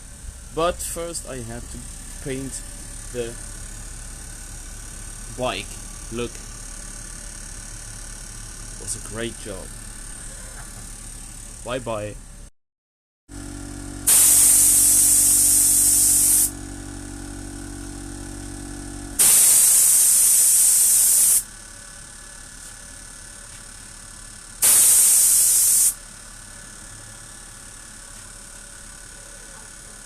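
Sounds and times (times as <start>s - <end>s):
low hum: 13.4s - 19.2s
spray paint hiss: 14.1s - 16.6s, 19.2s - 21.5s, 24.6s - 26.0s.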